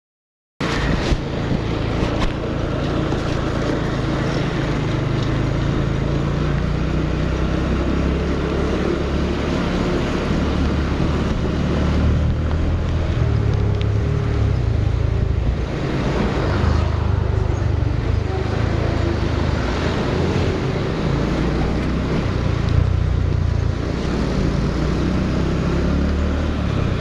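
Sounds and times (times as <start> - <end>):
broad rushing noise: 15.0 - 27.0.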